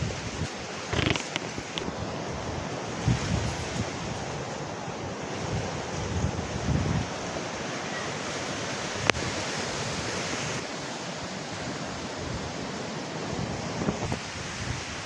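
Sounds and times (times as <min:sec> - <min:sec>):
heavy rain hissing: 0:00.0 - 0:03.4.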